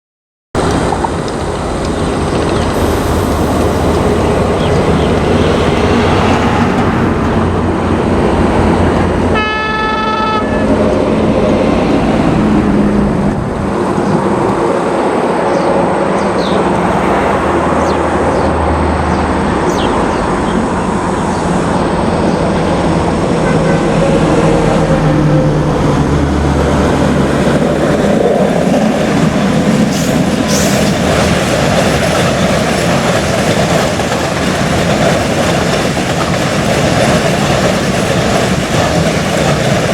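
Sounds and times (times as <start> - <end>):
train wheels rumbling on rails: 0.6 - 39.9
train horn: 9.3 - 10.9, 23.4 - 25.4.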